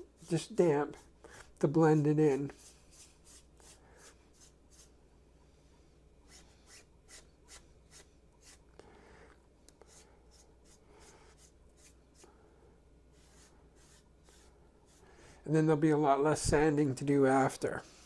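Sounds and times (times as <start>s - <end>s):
damp sponge rubbing: 0.0s - 5.0s, 13.1s - 15.1s.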